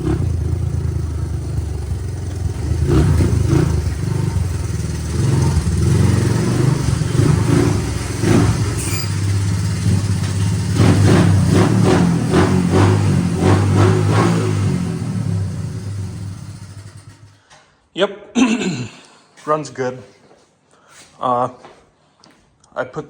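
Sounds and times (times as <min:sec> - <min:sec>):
motorcycle engine revving: 0:00.0 - 0:17.4.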